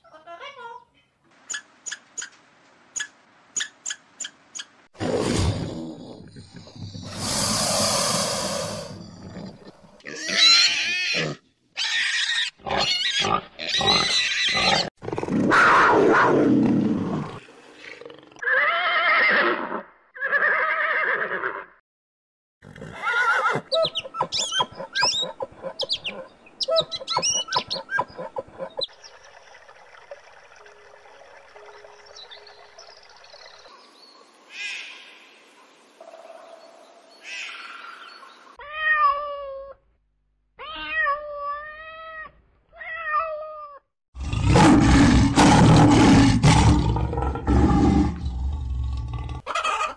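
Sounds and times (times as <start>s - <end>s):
piglets squealing: 10.1s - 14.9s
cat meowing: 40.6s - 43.8s
animal calls: 49.4s - 49.9s.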